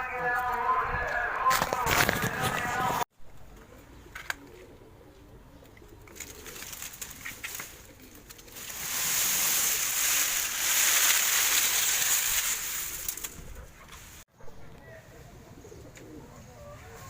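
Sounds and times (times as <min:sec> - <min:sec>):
pigeons cooing: 0:03.6 - 0:11.0, 0:12.9 - 0:17.0
loud steady hiss: 0:08.6 - 0:13.2.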